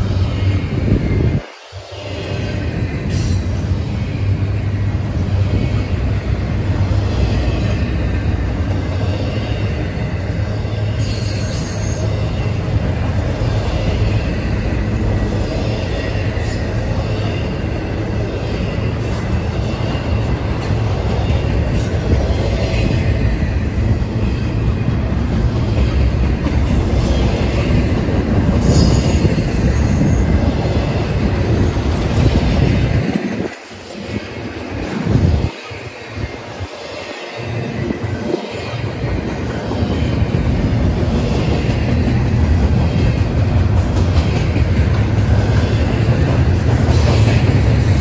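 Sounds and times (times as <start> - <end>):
steel wheels rumbling on rail: 0.0 - 48.0.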